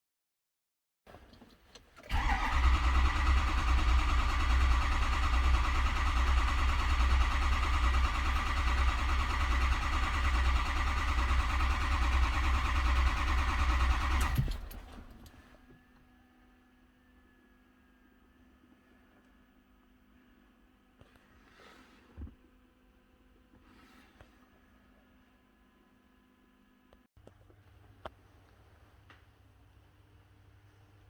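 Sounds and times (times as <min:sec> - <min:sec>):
diesel engine cranking: 0:01.2 - 0:15.4.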